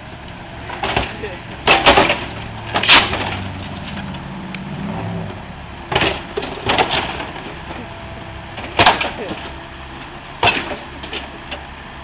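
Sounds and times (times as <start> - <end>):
excavator diesel engine running: 0.0 - 12.0
loud bangs on car body: 0.8 - 3.4, 8.7 - 9.2.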